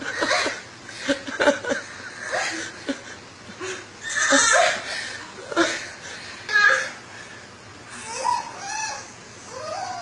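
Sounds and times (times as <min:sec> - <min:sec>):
laughter: 0:00.0 - 0:03.8.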